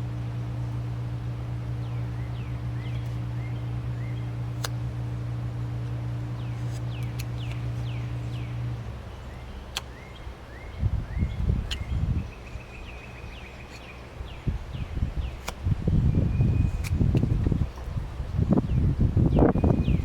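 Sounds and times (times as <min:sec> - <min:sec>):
birds chirping: 0:00.0 - 0:04.8, 0:05.7 - 0:20.0
low hum: 0:00.0 - 0:20.0
sharp clicks: 0:06.7 - 0:08.0.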